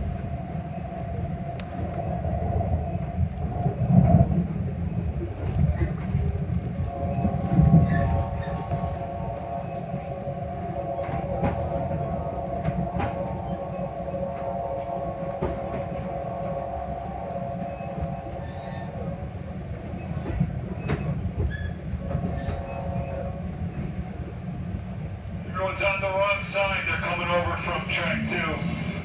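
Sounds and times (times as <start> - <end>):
steady hum: 0.0 - 20.2
train rumble: 0.0 - 29.0.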